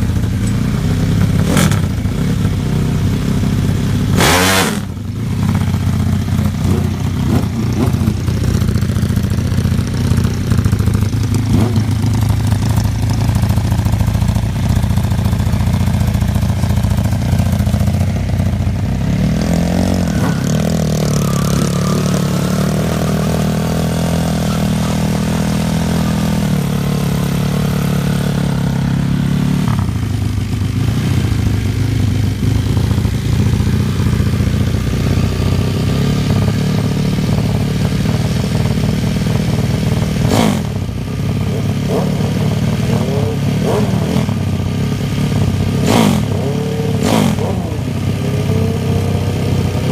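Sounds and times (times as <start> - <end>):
motorcycle engine idling and revving: 0.0 - 49.9.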